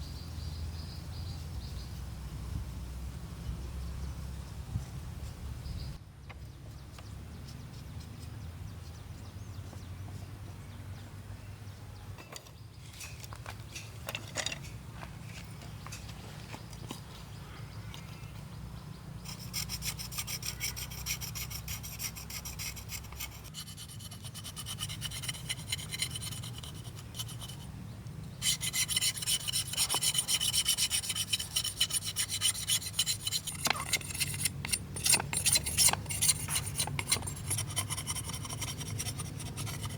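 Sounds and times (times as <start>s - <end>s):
hand tool rasping bamboo: 19.3s - 27.7s, 28.4s - 39.9s.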